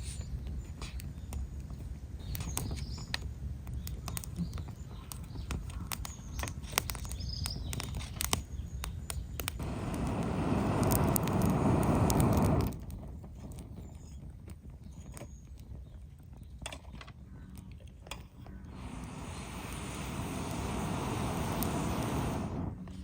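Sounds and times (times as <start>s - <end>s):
campfire crackling and popping: 0.2s - 23.0s
rushing noise: 9.6s - 12.8s, 18.7s - 22.8s
low rumble: 9.6s - 13.7s, 18.5s - 23.0s.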